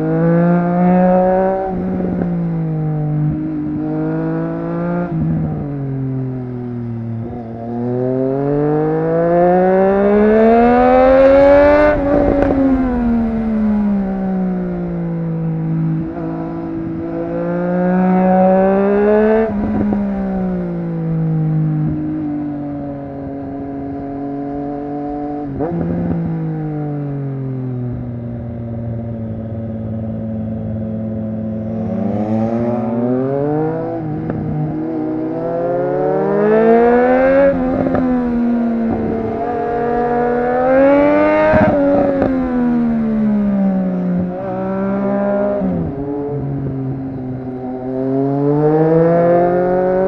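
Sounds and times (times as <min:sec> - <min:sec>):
motorcycle engine revving hard: 0:07.1 - 0:14.0, 0:15.7 - 0:20.9, 0:31.2 - 0:50.0.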